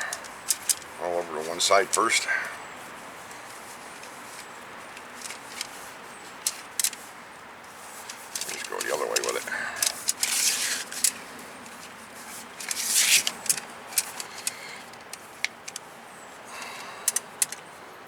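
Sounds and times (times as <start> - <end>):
metal tubing clicks: 0.0 - 0.9, 4.9 - 7.1, 8.0 - 11.2, 12.6 - 15.8, 16.6 - 17.7.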